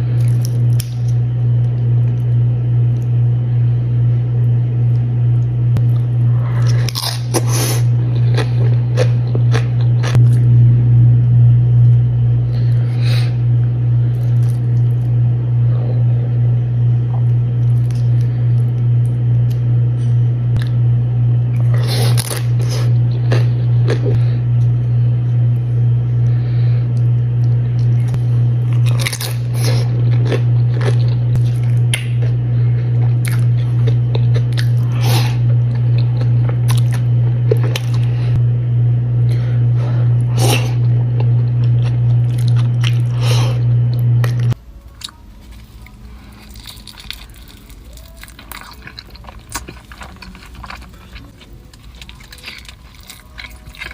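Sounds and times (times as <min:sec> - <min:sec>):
crunching chips and chewing: 0:00.0 - 0:03.2, 0:04.9 - 0:10.5, 0:14.0 - 0:15.2, 0:17.0 - 0:19.7, 0:21.5 - 0:24.7, 0:27.0 - 0:38.4, 0:40.2 - 0:53.9
loud steady low hum: 0:00.0 - 0:53.9.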